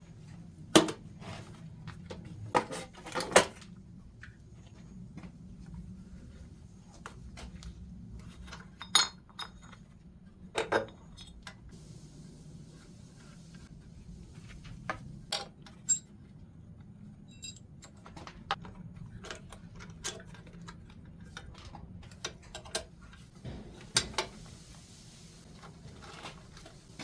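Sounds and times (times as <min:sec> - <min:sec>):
low steady hum: 0:00.0 - 0:27.0
metal pieces clinking together: 0:08.5 - 0:09.8, 0:17.3 - 0:18.0.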